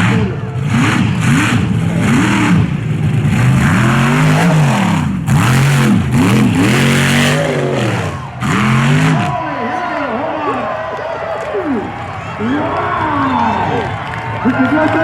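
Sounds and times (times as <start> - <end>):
truck engine revving: 0.0 - 9.6.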